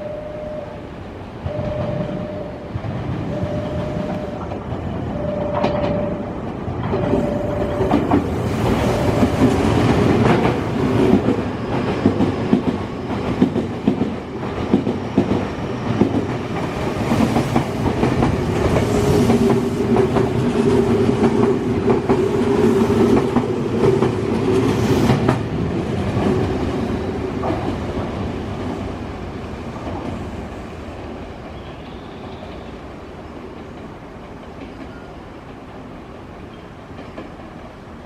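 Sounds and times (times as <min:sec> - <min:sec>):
train motor whine: 0:00.0 - 0:09.5
repeating warning tone: 0:01.5 - 0:02.7, 0:03.3 - 0:04.5, 0:05.1 - 0:06.4, 0:07.0 - 0:08.0
train wheels clattering over rail joints: 0:04.4 - 0:28.2.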